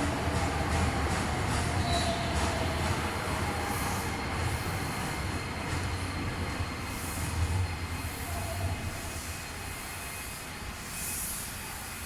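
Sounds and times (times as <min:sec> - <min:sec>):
electric train rumbling to a stop: 0:00.0 - 0:12.0
wheel and brake squeal: 0:01.8 - 0:02.6.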